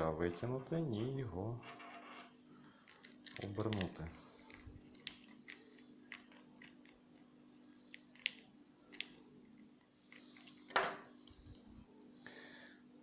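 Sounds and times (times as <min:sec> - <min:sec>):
key rattling in lock: 0:02.8 - 0:06.9.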